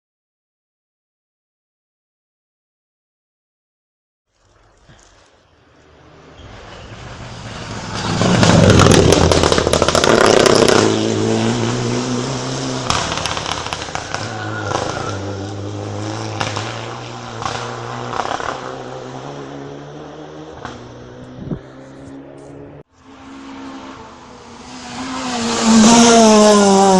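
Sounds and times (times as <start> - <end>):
engine crackles: 4.3 - 22.8
rally car passing at full throttle: 5.6 - 26.9.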